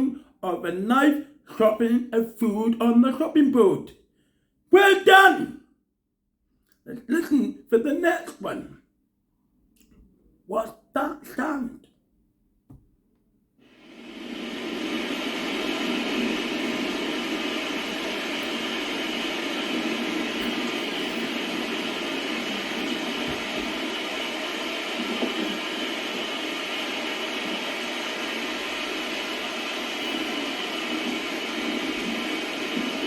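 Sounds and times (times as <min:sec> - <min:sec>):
steady rain falling: 0:13.8 - 0:33.0.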